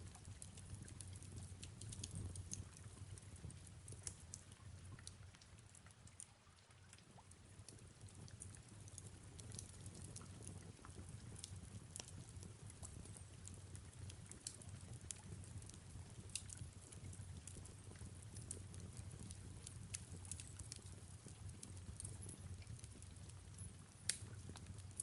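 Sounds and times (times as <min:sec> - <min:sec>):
soft rain hiss: 0:00.0 - 0:25.0
fireplace crackling pops: 0:08.9 - 0:25.0.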